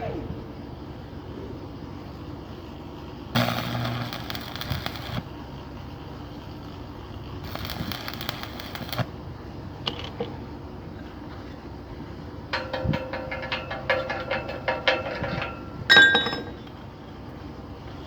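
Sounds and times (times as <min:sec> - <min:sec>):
welding arc crackling: 0:03.3 - 0:09.2.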